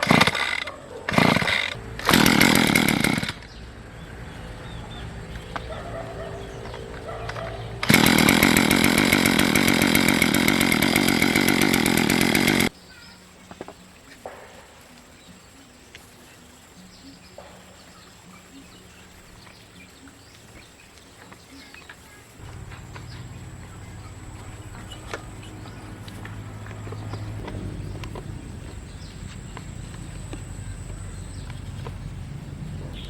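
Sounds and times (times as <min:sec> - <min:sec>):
motor buzzing: 0:00.0 - 0:12.8, 0:22.4 - 0:32.0.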